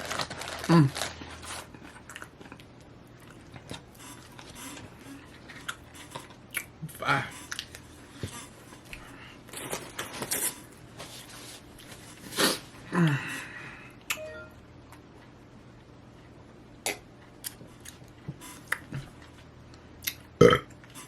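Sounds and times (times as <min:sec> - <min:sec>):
packaging crinkling and rustling: 0:00.0 - 0:02.6, 0:09.5 - 0:12.3
chewing: 0:01.4 - 0:10.6, 0:17.2 - 0:21.0.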